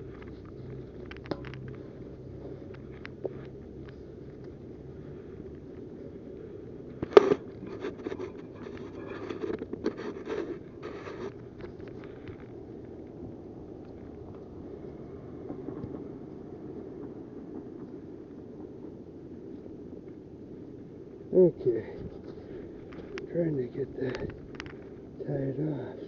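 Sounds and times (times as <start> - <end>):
rope scraping and rustling: 0.0 - 13.0
low background noise: 0.0 - 26.0.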